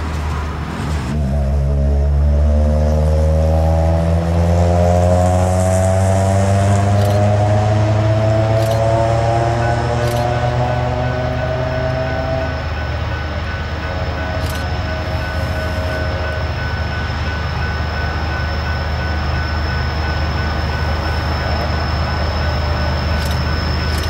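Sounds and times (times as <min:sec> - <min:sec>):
train wheels rumbling on rails: 0:00.0 - 0:24.0
high ringing tone: 0:08.5 - 0:24.0.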